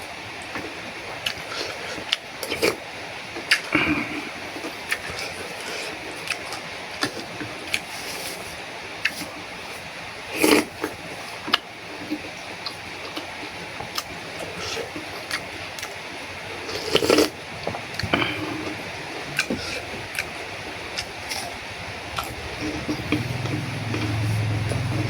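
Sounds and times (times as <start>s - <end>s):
person chewing food: 16.6s - 25.0s.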